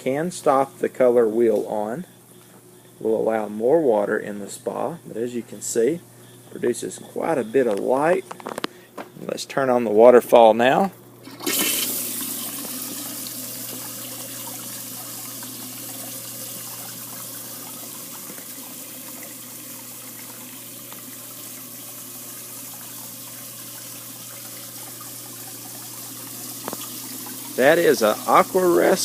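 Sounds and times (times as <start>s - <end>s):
water pouring into spa: 11.2s - 29.0s.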